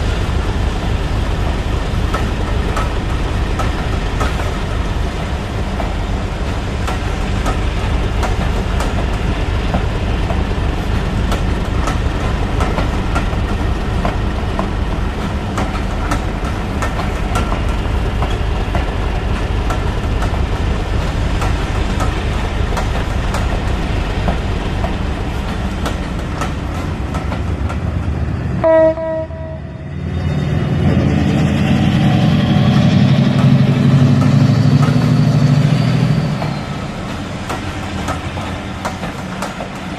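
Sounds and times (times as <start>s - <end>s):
model train rumbling: 0.0s - 39.9s
rail clicks: 0.0s - 39.9s
train horn blast: 28.6s - 29.9s.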